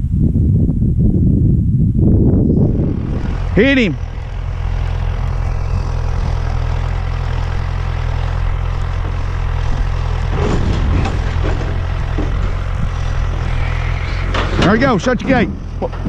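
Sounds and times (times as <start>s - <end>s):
tractor engine running: 2.0s - 16.0s.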